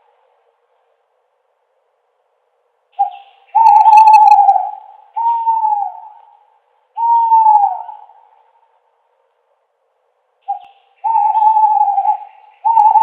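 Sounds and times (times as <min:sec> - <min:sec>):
owl hooting: 0:03.0 - 0:08.5, 0:10.4 - 0:13.0.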